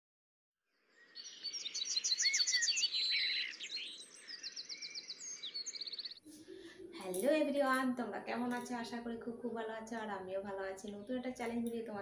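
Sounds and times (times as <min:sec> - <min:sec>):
birds chirping: 0:00.9 - 0:07.7.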